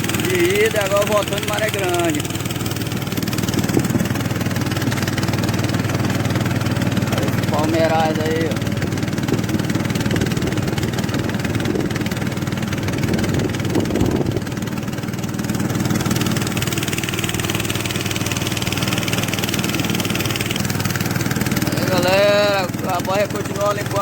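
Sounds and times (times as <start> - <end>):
boat motor droning: 0.0 - 24.0.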